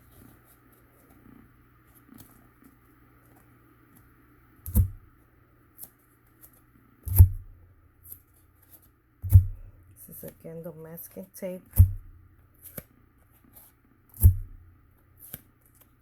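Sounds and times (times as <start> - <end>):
paper rustling: 0.0 - 4.1.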